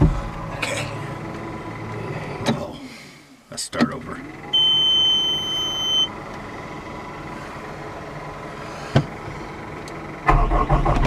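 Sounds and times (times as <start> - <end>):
high steady electronic beep: 4.5 - 6.1.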